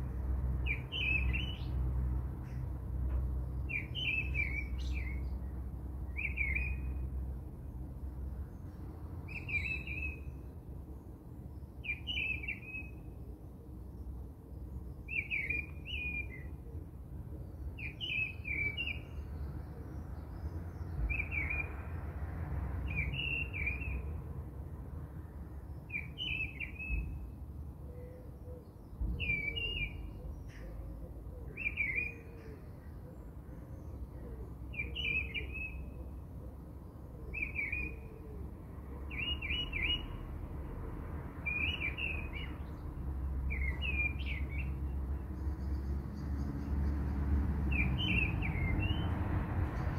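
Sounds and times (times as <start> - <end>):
bird chirping: 0.1 - 1.8, 3.5 - 7.1, 8.6 - 10.5, 11.5 - 13.1, 14.0 - 16.6, 17.4 - 21.8, 22.8 - 24.2, 25.7 - 30.8, 31.5 - 36.0, 36.8 - 38.2, 39.0 - 40.3, 41.4 - 47.1, 47.7 - 49.9.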